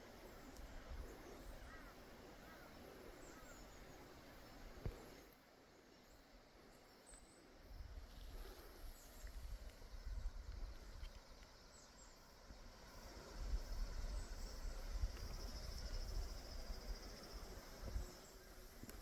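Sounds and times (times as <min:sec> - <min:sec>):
insects trilling: 0:00.0 - 0:19.0
wind rumbling on microphone: 0:07.6 - 0:19.0.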